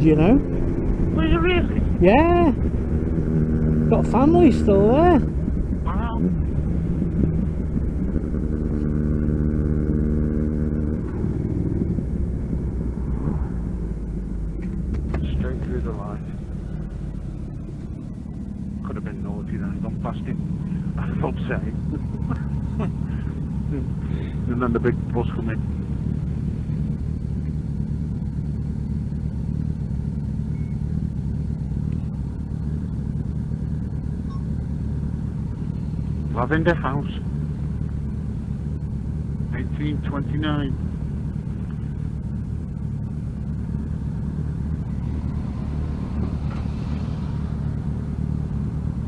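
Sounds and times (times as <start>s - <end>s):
motorcycle engine running: 0.0s - 49.0s
wind and road rumble: 0.0s - 49.0s.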